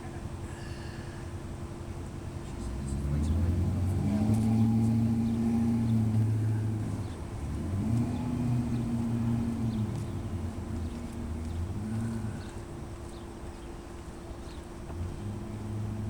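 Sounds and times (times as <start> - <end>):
car tyres rolling over cobblestones: 1.8 - 16.0.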